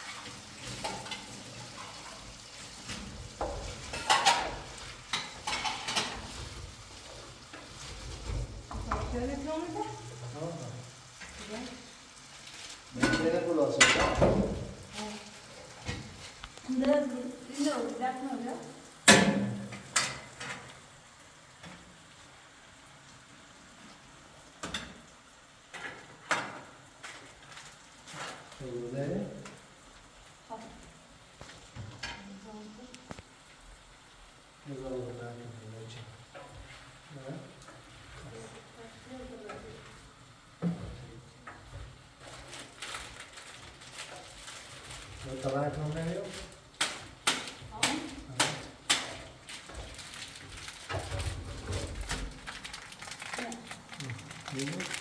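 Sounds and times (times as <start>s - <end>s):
utensil scraping a pan: 0.0s - 9.2s
food sizzling in a pan: 0.0s - 55.0s.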